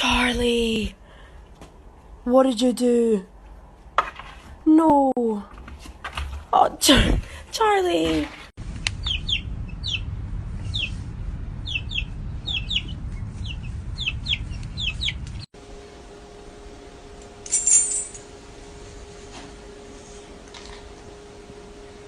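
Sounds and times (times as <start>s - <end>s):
low rumble: 8.6s - 17.3s
steady low hum: 8.6s - 22.0s
bird chirping: 9.0s - 11.0s, 11.6s - 15.4s.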